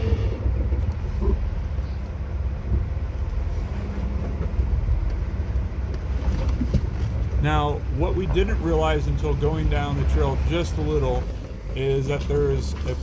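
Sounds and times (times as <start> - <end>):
engine low rumble: 0.0 - 13.0.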